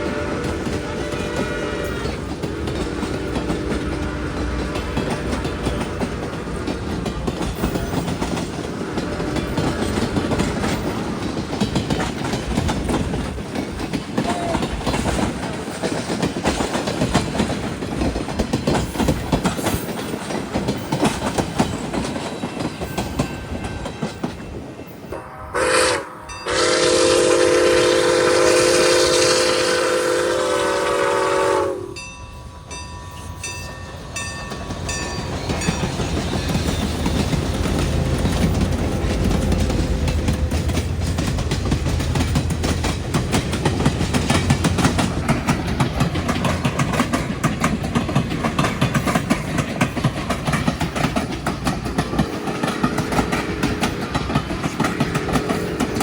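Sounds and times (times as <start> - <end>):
locomotive horn blasts: 0.0 - 5.8, 25.1 - 32.0
train wheels clattering: 0.0 - 25.7, 32.4 - 56.0.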